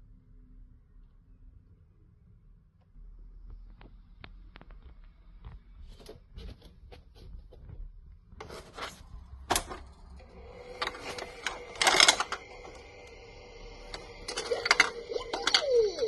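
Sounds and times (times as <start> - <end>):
steady electronic tone: 10.2 - 16.0
plastic toy clicks and rattles: 10.7 - 13.0, 13.9 - 16.0.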